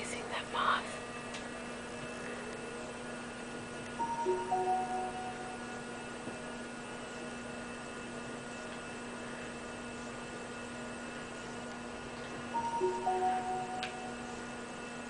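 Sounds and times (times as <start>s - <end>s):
electrical hum: 0.0s - 15.0s
short electronic notes: 4.0s - 5.8s, 12.6s - 14.4s
faint steady high tones: 4.0s - 6.1s, 12.5s - 14.7s.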